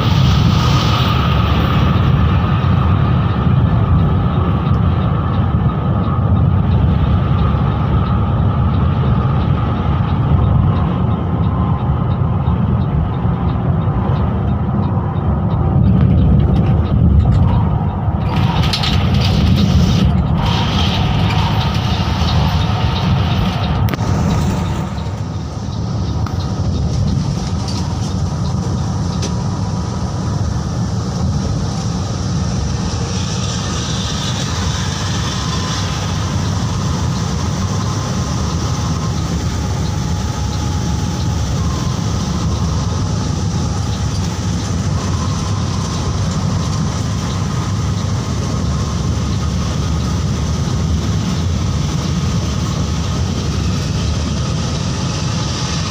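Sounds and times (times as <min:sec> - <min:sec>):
coach engine and road rumble: 0:00.0 - 0:55.9.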